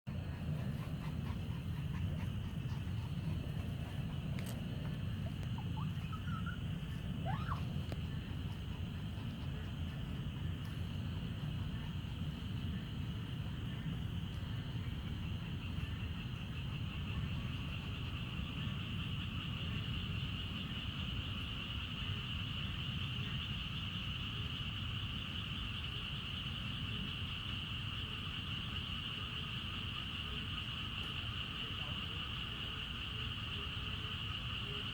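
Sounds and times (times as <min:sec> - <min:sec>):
low rumble: 0:00.1 - 0:20.9
insects buzzing: 0:00.1 - 0:34.9.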